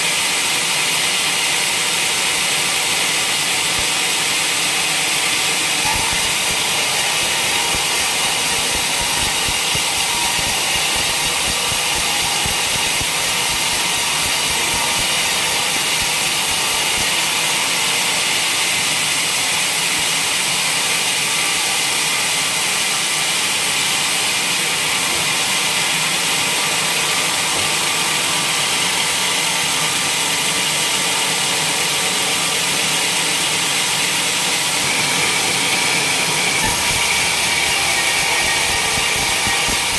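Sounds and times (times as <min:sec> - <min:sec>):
sawmill engine drone: 0:00.0 - 0:23.4, 0:26.9 - 0:39.9
saw hissing: 0:03.0 - 0:17.9, 0:33.9 - 0:39.9.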